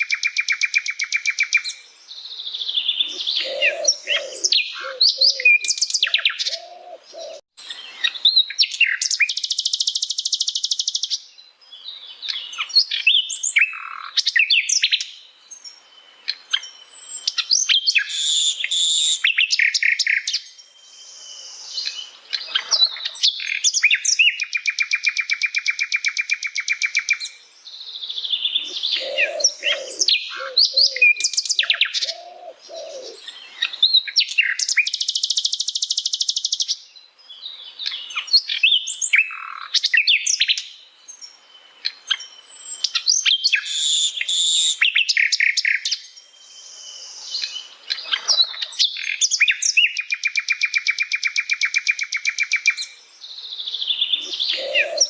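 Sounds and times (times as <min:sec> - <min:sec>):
bird chirps and whistles: 0:00.0 - 0:01.8, 0:08.4 - 0:11.2, 0:17.5 - 0:20.4, 0:23.4 - 0:27.3, 0:33.9 - 0:36.7, 0:42.9 - 0:46.0, 0:49.0 - 0:52.9.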